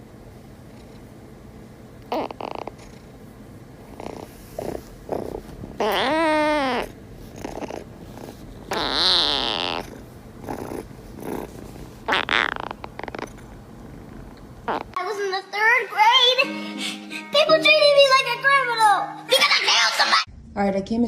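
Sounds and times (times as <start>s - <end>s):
cat meowing: 5.8s - 7.8s, 8.7s - 10.8s.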